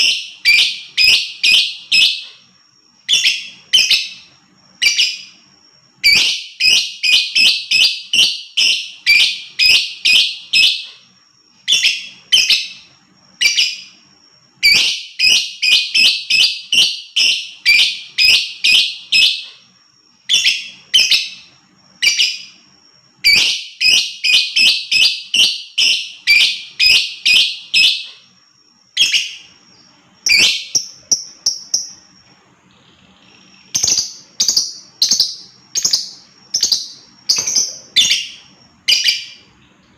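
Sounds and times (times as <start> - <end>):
lovebird chattering: 33.3 - 39.5.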